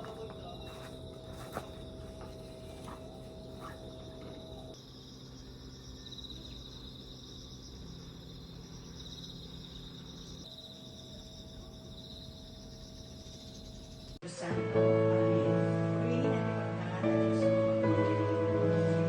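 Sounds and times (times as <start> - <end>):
insects chirring: 0.0 - 14.2.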